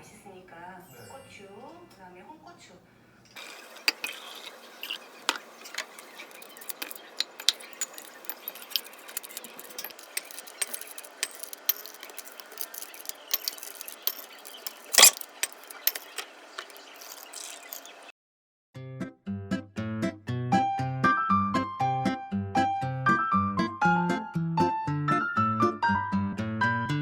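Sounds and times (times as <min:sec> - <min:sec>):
small hard objects clicking: 0:03.3 - 0:18.1.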